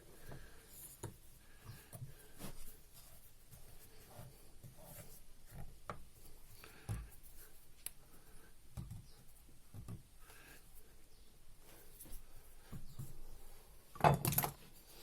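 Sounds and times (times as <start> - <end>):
small parts clicking and knocking: 14.0 - 14.7.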